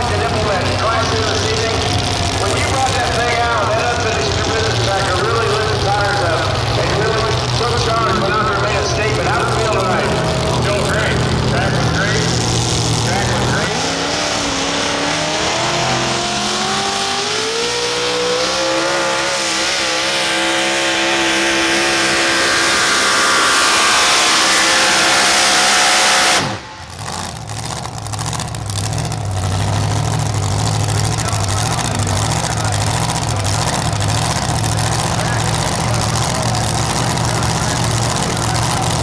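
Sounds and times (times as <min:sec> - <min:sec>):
low steady engine note: 0:00.0 - 0:18.3, 0:26.5 - 0:39.0
truck engine at full throttle: 0:00.0 - 0:39.0.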